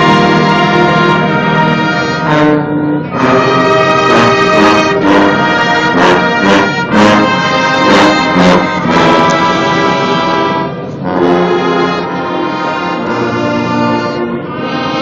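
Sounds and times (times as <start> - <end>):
brass section playing chords: 0.0 - 15.0.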